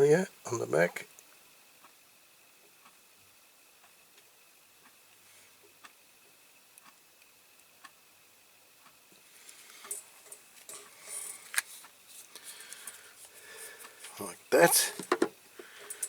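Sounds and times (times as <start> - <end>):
rustling: 9.3 - 14.2
small parts and tools clicking: 14.9 - 16.0.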